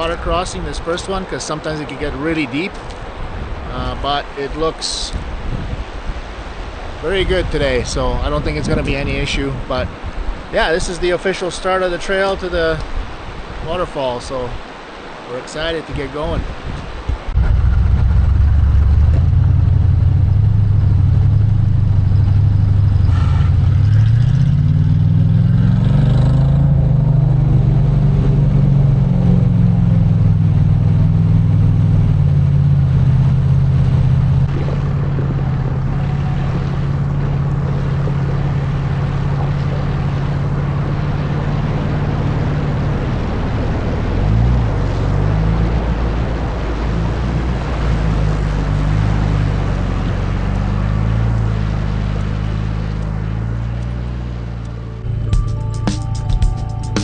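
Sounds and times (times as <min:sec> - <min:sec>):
truck engine driving off: 0:17.3 - 0:57.0.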